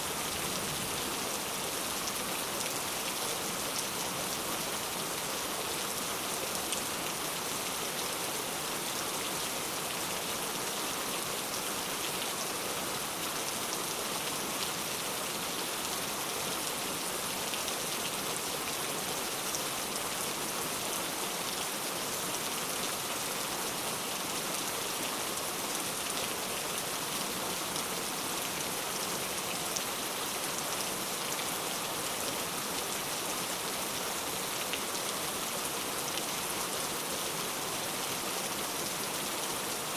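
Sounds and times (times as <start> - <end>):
heavy rain falling: 0.0 - 7.7.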